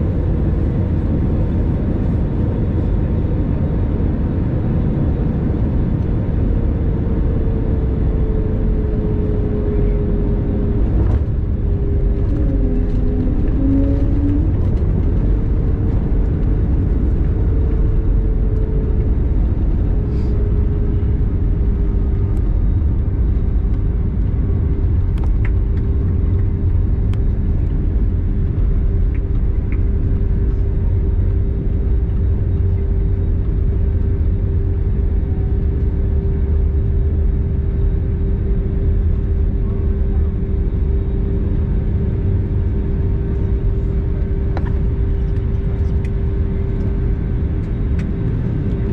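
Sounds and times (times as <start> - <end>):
airliner cabin rumble: 0.0 - 48.9.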